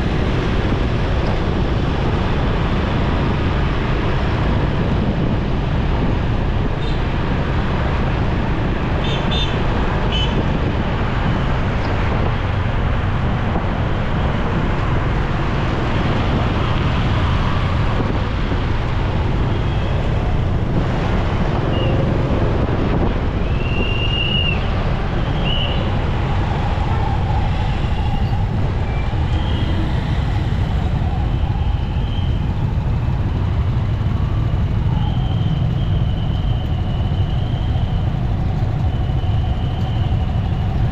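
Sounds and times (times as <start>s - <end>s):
road and wind noise: 0.0s - 40.9s
motorcycle engine: 27.8s - 40.9s.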